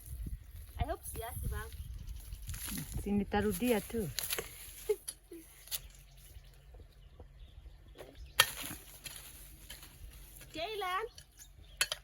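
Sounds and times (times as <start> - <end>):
knocks and scuffs in soil: 7.9 - 11.6.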